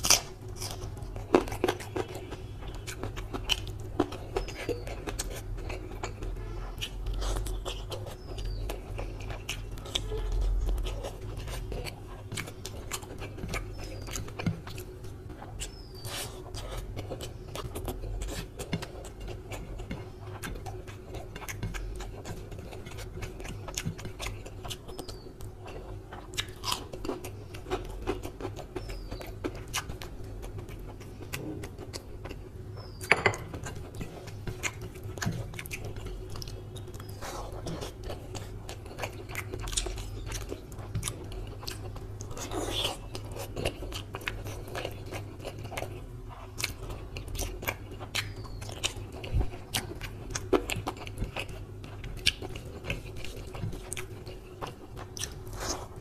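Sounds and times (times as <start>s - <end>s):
person chewing with mouth clicks: 0.0s - 56.0s.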